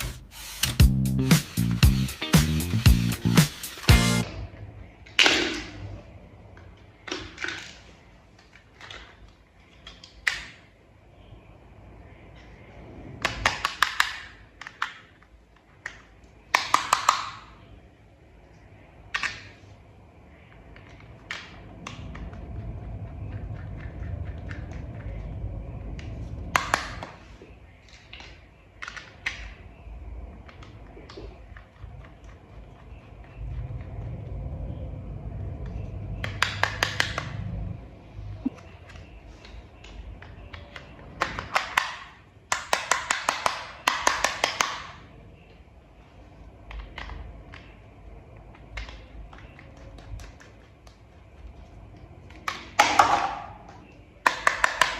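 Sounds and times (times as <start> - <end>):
low rubbing handling noise: 0.0 - 4.3
toy parts clicking and snapping: 13.2 - 17.6, 27.8 - 29.6, 36.2 - 37.4, 38.9 - 45.0, 53.7 - 54.9.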